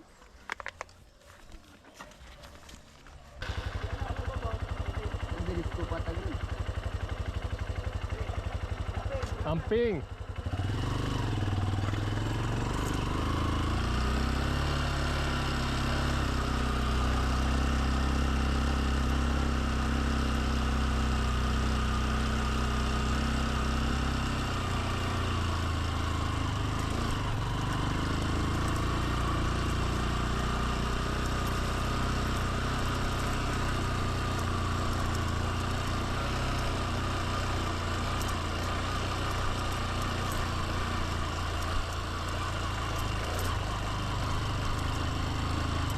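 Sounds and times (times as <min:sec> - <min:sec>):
motorbike engine running: 0:02.4 - 0:45.9
wind and road noise: 0:09.2 - 0:45.9.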